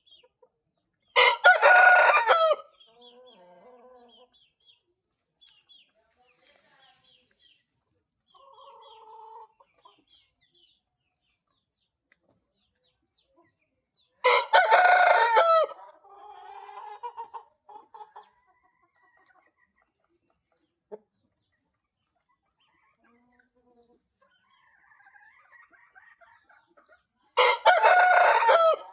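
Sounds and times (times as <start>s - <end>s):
rooster crowing: 1.2s - 2.6s, 14.2s - 15.8s, 27.4s - 28.9s.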